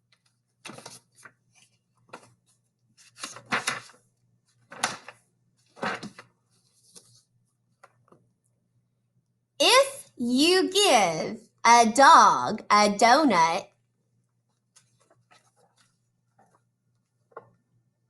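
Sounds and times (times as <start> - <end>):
faint steady hum: 0.0 - 18.0
rustling and knocking handling noises: 3.4 - 8.4, 14.6 - 17.8.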